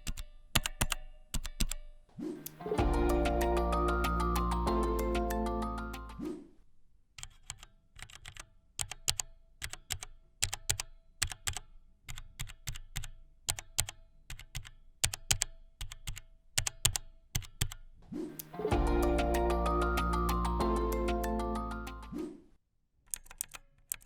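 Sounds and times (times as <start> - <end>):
mechanical keyboard typing: 7.2 - 17.8, 23.1 - 24.0.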